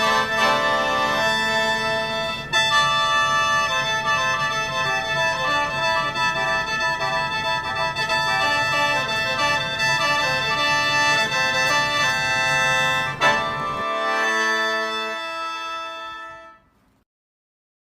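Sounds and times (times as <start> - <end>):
organ-like instrumental music: 0.0 - 16.6.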